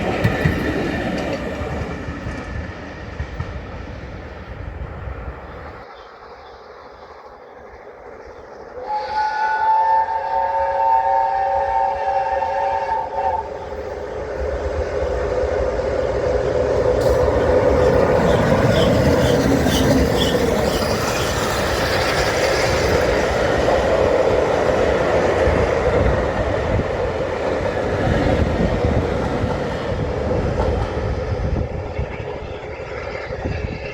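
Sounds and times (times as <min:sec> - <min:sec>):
steam locomotive running past: 0:00.0 - 0:33.9
steam whistle: 0:08.8 - 0:13.6
wheels on rails: 0:13.4 - 0:33.9.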